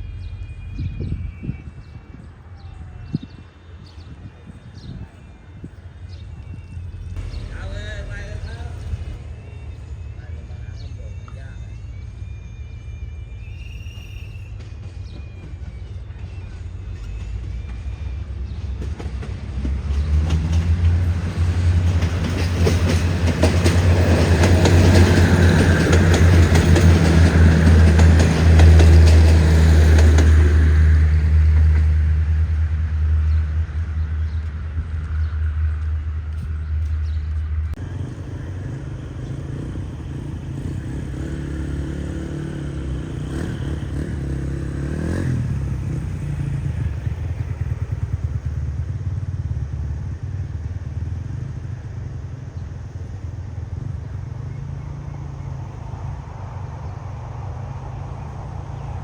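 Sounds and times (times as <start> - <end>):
diesel train engine drone: 0.0 - 59.0
quieter engine running: 5.7 - 12.9, 16.4 - 59.0
wheels clattering on rails: 14.5 - 32.0, 37.8 - 50.0.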